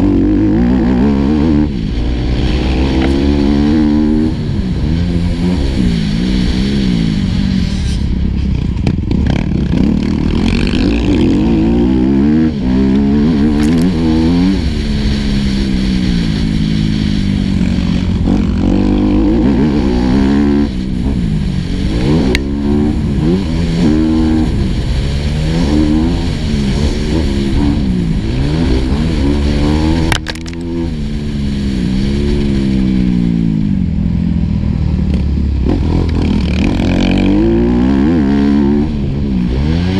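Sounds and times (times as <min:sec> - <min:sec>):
motocross bike engine revving: 0:00.0 - 0:08.1, 0:08.8 - 0:33.9, 0:35.1 - 0:39.9.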